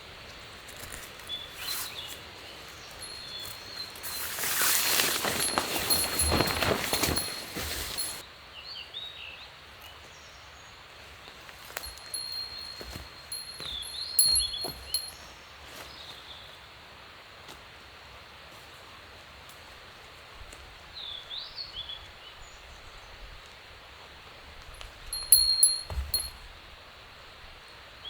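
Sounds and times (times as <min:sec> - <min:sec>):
metal camping gear clinking: 0:02.8 - 0:08.2, 0:11.5 - 0:15.3, 0:24.7 - 0:26.6.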